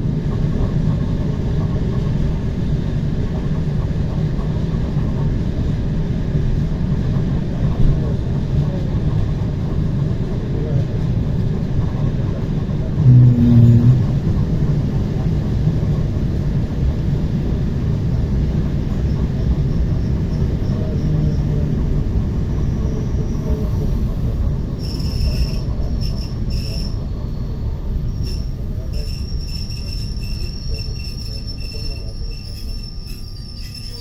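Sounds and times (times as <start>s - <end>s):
train wheels rumbling on rails: 0.0s - 34.0s
brief low tone pulses: 13.0s - 15.0s
high wheel squeal: 24.7s - 27.4s, 28.1s - 34.0s.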